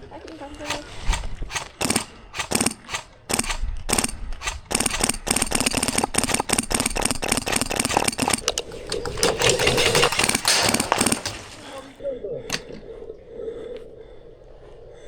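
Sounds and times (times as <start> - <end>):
full-auto stream of sharp clicks: 0.6 - 11.6
airsoft gun shots: 0.6 - 12.8.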